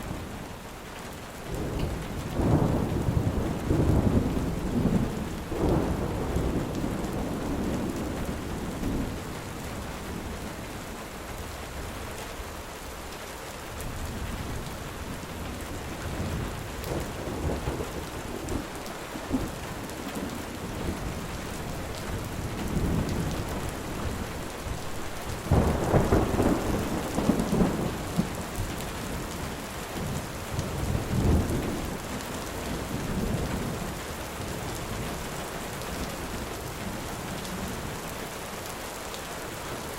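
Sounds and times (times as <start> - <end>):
steady rain falling: 0.0 - 39.9
thunder rumbling: 1.5 - 10.4, 13.9 - 33.9.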